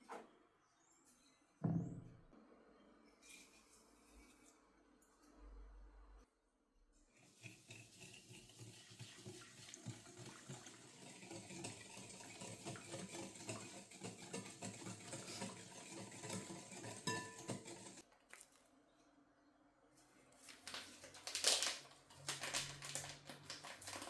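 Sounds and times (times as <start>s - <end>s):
dishes and utensils clinking: 7.4s - 18.0s
running water: 7.4s - 18.0s.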